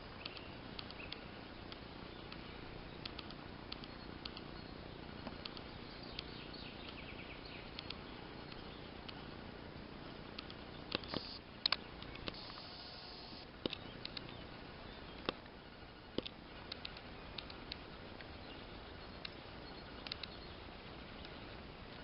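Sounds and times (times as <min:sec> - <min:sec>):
forest ambience: 0:00.0 - 0:22.0
faint clicks and crackles: 0:00.1 - 0:09.4, 0:10.1 - 0:14.4, 0:15.1 - 0:22.0
short high hiss: 0:11.1 - 0:11.4, 0:12.3 - 0:13.4.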